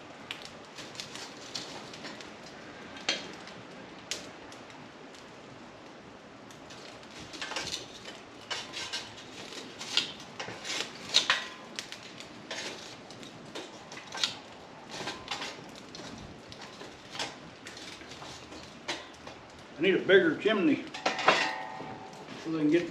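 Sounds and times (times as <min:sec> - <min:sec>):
charcoal clinking against metal: 0:06.7 - 0:19.5, 0:20.8 - 0:22.9.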